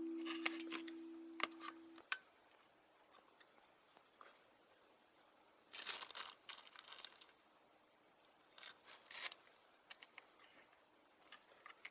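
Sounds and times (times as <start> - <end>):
packaging crinkling and rustling: 5.7 - 7.4, 8.6 - 9.4.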